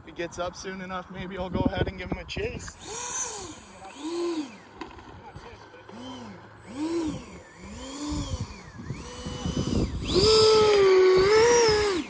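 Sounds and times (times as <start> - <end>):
model airplane motor whining: 2.6 - 12.0.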